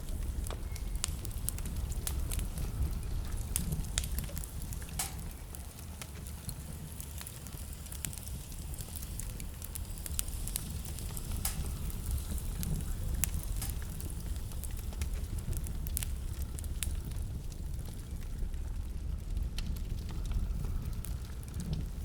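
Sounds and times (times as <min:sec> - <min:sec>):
blizzard wind rumble: 0:00.0 - 0:22.0
wood fire crackling: 0:00.0 - 0:22.0.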